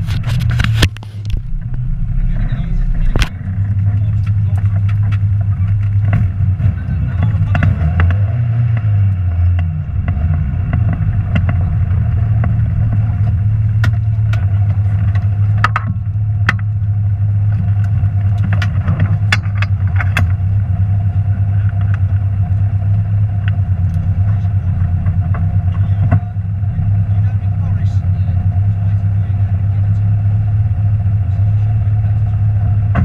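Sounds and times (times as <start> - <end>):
sharp clicks and knocks: 0.0 - 1.9, 2.9 - 6.4, 7.2 - 16.9, 17.5 - 20.5
car engine running steadily: 0.0 - 33.0.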